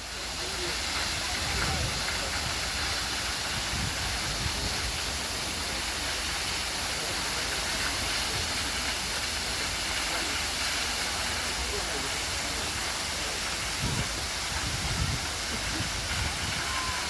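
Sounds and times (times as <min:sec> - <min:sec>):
waterfall pouring: 0:00.0 - 0:17.0.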